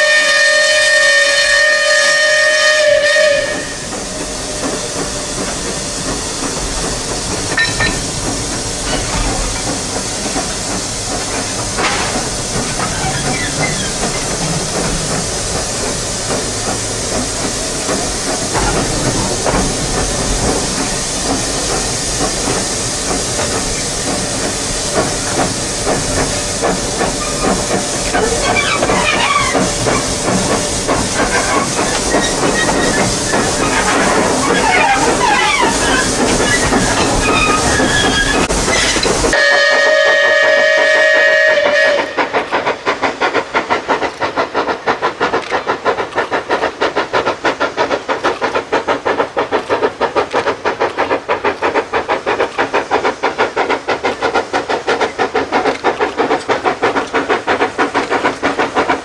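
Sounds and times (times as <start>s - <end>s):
steam whistle: 0.0s - 4.0s, 39.3s - 42.4s
steam hissing: 0.0s - 59.0s
train rumbling and clanking: 0.0s - 59.0s.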